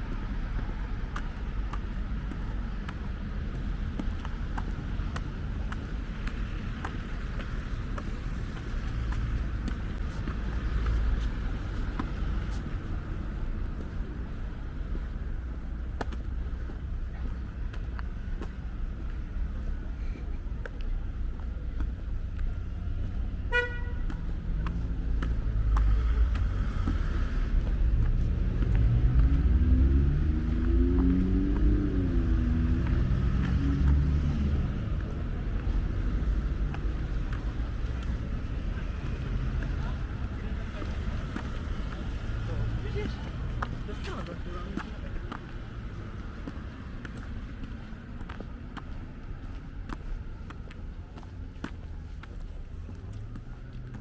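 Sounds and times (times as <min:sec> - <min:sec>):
street traffic rumble: 0:00.0 - 0:54.0
wind: 0:00.0 - 0:54.0
motor vehicle passing: 0:24.1 - 0:54.0.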